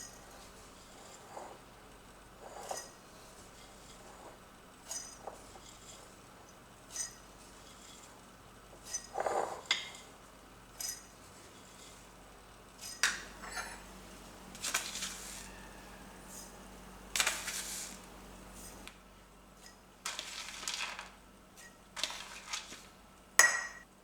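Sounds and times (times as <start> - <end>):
dishes and utensils clinking: 12.8 - 13.9, 23.4 - 23.9
scraping or rustling: 14.6 - 16.6, 17.2 - 18.9.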